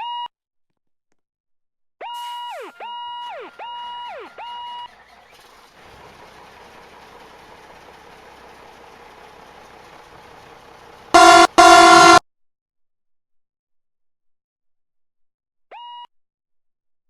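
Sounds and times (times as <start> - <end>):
vehicle engine rumble: 4.9 - 12.2
fire truck siren whooping: 5.8 - 12.2.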